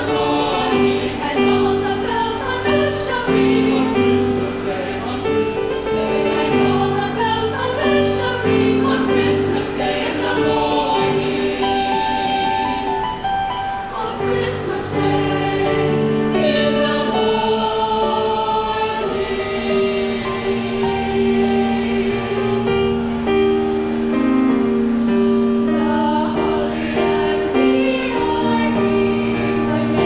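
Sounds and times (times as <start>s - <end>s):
choir singing: 0.0s - 30.0s.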